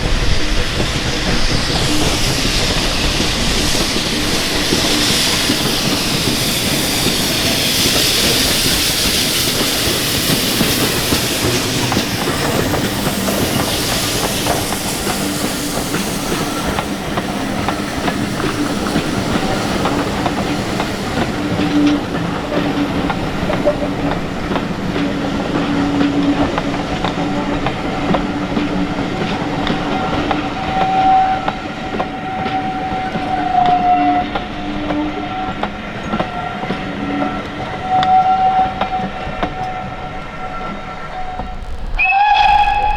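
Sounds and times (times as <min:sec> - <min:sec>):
train wheels clicking over rail joints: 0:00.0 - 0:37.0
steam hiss: 0:00.0 - 0:42.9
steady whining tones: 0:40.4 - 0:42.9.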